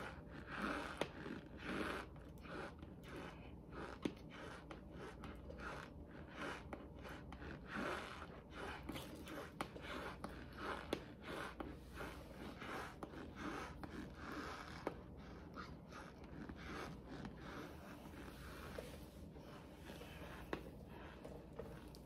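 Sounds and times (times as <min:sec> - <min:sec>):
cornstarch chunks crunching when chewed: 0:00.0 - 0:11.7.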